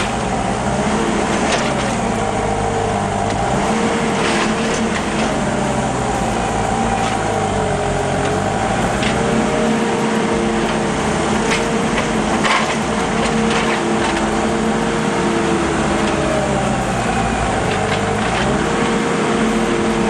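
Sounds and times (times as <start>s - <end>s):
heavy vehicle engine running: 0.0s - 20.0s.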